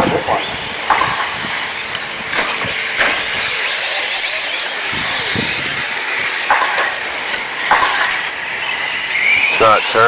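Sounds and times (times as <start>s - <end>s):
radio-controlled trucks racing: 0.0s - 10.0s
sharp clicks and knocks: 0.9s - 3.3s, 6.4s - 8.3s.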